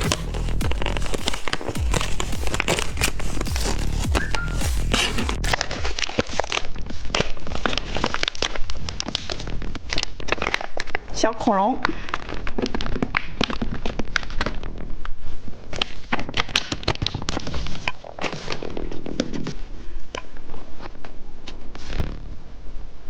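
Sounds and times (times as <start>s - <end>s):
candy crunching and chewing: 0.0s - 11.1s.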